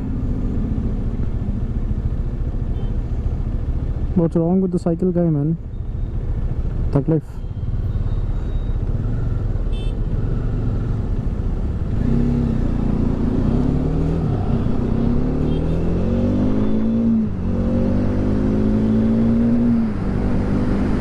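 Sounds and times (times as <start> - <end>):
wind and road noise: 0.0 - 21.0
motorcycle engine accelerating: 10.2 - 21.0.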